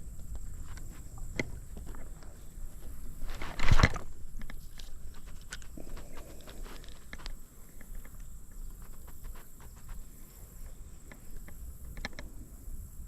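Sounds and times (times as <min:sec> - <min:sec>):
footsteps on stones: 0:00.4 - 0:07.4.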